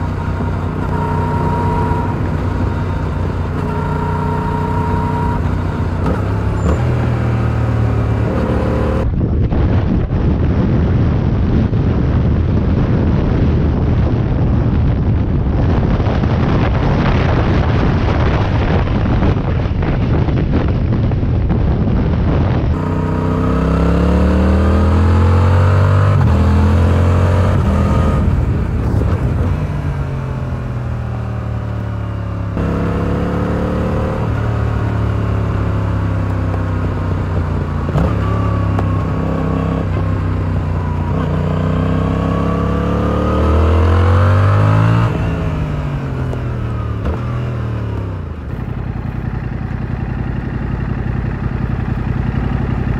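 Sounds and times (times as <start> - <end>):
motorcycle engine revving: 0.0 - 9.2, 22.4 - 52.9
road noise at speed: 0.0 - 52.9.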